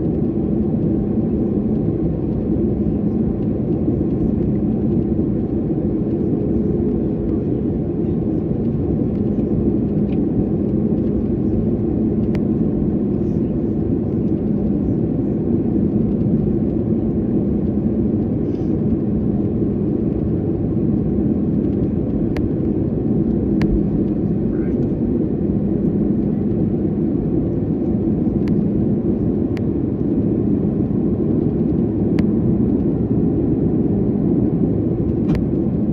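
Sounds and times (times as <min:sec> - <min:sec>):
airliner cabin drone: 0:00.0 - 0:35.9
steady hum: 0:20.3 - 0:35.9.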